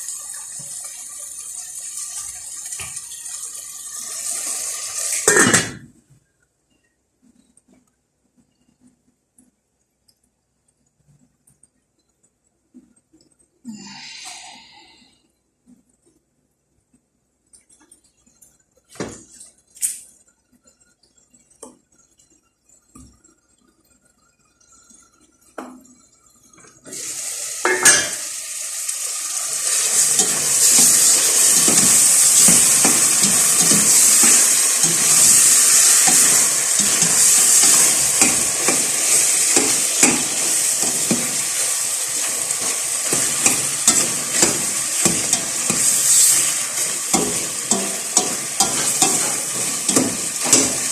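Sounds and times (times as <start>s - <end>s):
food sizzling in hot oil: 0.0s - 5.8s, 26.8s - 50.9s
cookware clinks: 27.7s - 28.2s
spatula scraping pan: 29.6s - 50.9s.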